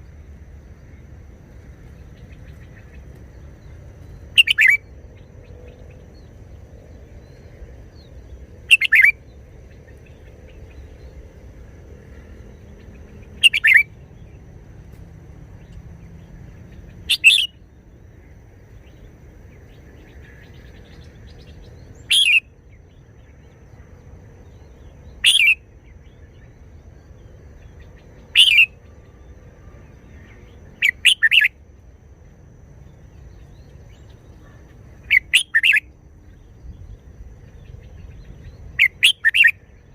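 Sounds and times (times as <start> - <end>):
bird song phrases: 0.0 - 39.9.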